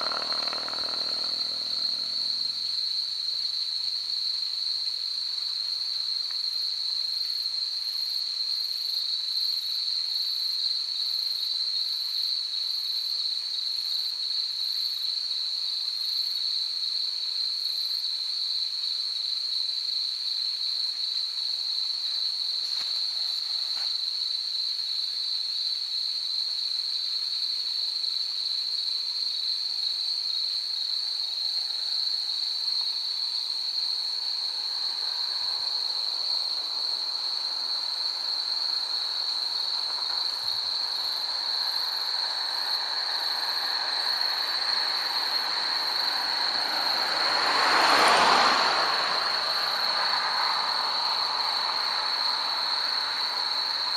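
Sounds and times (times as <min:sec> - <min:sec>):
insects buzzing drone: 0:00.0 - 0:15.2, 0:25.6 - 0:53.9
faint rushing noise: 0:34.4 - 0:53.9.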